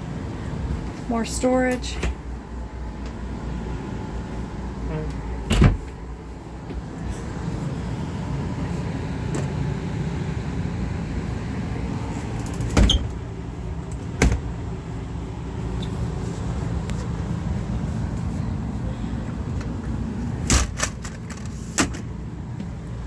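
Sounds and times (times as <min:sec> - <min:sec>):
steady low rumble: 0:00.0 - 0:23.0
cabinet doors shutting: 0:05.4 - 0:06.0, 0:12.4 - 0:13.2, 0:14.0 - 0:14.5.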